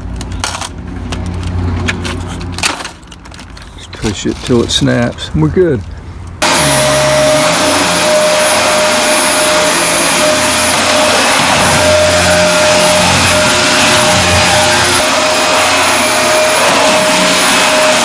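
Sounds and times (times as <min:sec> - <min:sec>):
upright vacuum cleaner running: 0:06.4 - 0:18.0.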